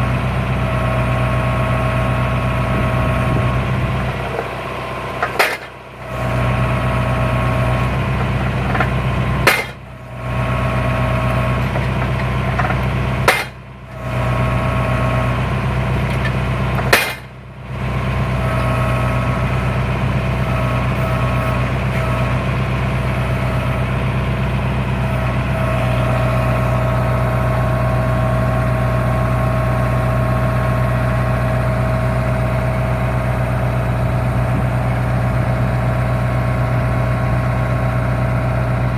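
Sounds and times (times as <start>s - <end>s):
tractor engine running: 0.0s - 38.9s
post knocker thudding onto post: 5.2s - 5.8s, 8.7s - 9.8s, 11.7s - 13.6s, 16.8s - 17.3s.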